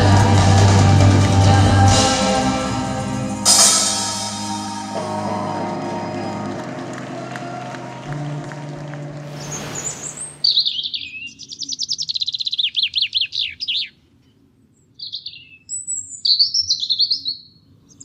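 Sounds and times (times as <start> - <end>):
brief rush of noise: 9.2 - 10.8
songbird singing: 9.3 - 18.0.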